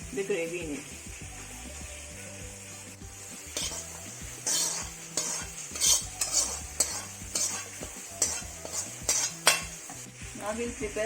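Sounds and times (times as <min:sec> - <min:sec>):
metal ladle scraping a pan: 0:03.3 - 0:10.2.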